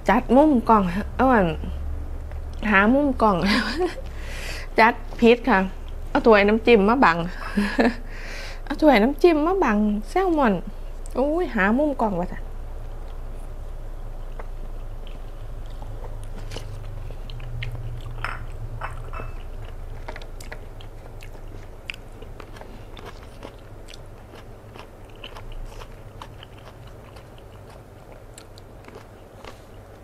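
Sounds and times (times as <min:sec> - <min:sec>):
wet chewing and crunching: 0:12.8 - 0:30.0.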